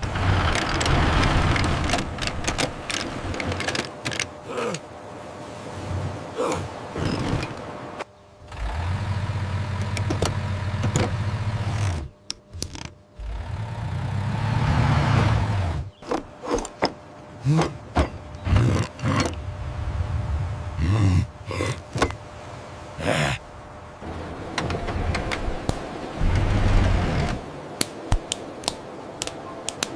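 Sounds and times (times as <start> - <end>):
truck engine revving: 0.0 - 3.3, 13.2 - 15.9, 24.0 - 27.5.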